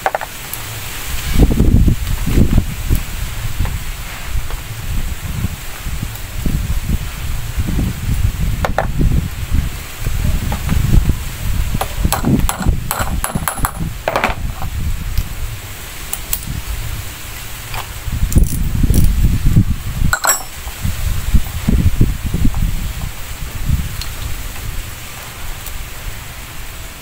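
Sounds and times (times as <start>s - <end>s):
wind rumble on microphone: 0.0s - 27.0s
metal tools clinking: 20.1s - 20.6s.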